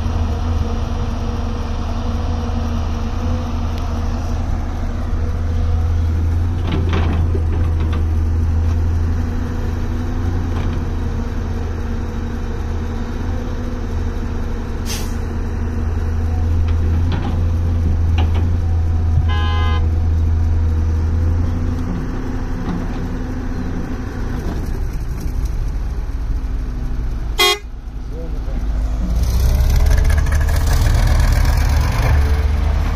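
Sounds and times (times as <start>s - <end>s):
excavator diesel engine droning: 0.0s - 32.9s.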